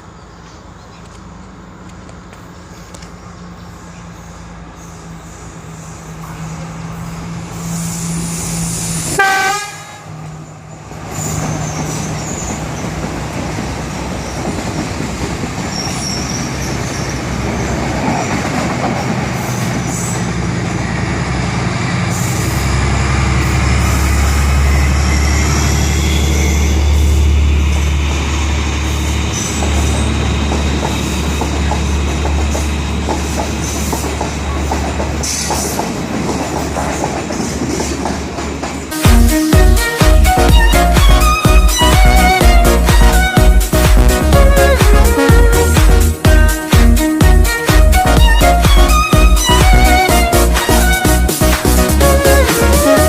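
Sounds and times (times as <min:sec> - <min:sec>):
diesel train engine and wheels: 0:00.0 - 0:53.0
train horn blast: 0:09.1 - 0:10.4.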